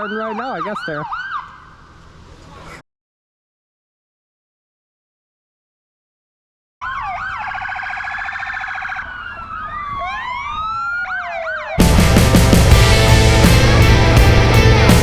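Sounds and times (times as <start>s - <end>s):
emergency vehicle sirens: 0.0s - 1.8s, 6.8s - 13.3s
loud rock music: 11.8s - 15.0s.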